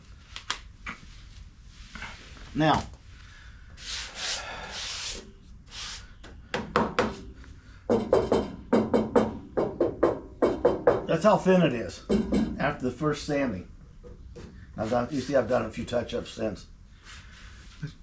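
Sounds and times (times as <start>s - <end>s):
scratchy rubbing strokes: 3.8s - 6.1s.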